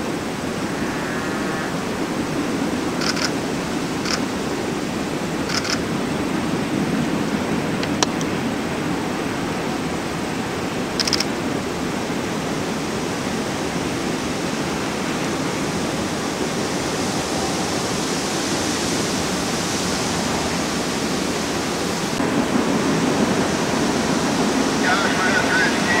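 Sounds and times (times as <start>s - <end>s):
train wheels rolling on rails: 3.0s - 4.3s.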